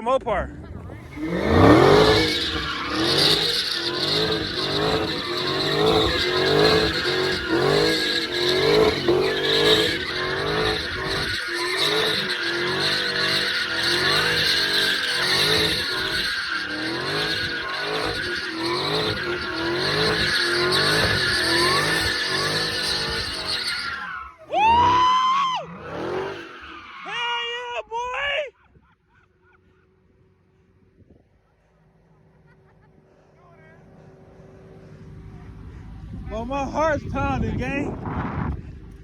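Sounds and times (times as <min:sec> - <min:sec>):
car engine at high revs: 0:00.5 - 0:26.9
tyres squealing on pavement: 0:00.8 - 0:28.4.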